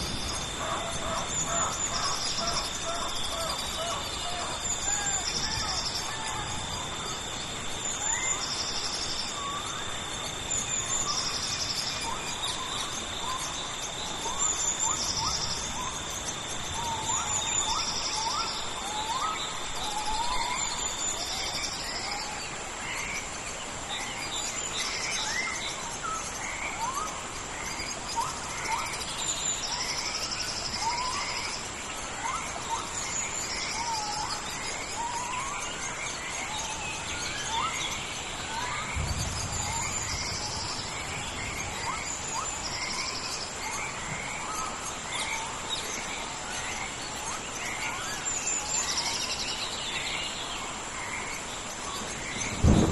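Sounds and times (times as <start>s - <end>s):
birds chirping: 0.0s - 52.9s
insects buzzing high-pitched: 0.0s - 52.9s.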